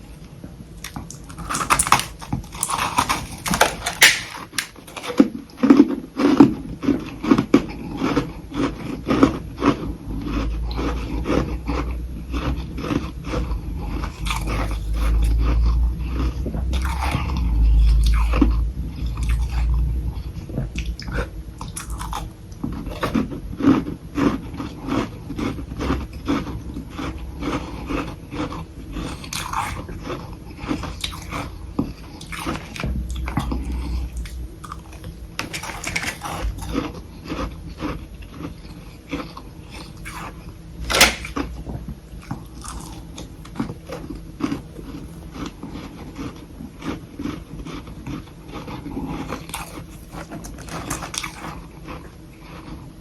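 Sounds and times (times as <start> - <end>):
crisp crunching of ice: 0.8 - 5.2.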